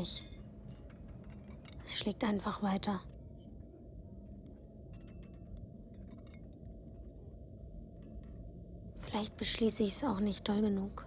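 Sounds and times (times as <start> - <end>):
faint clinks and taps: 0.0 - 1.9, 4.2 - 8.7
low steady hum: 0.0 - 11.0.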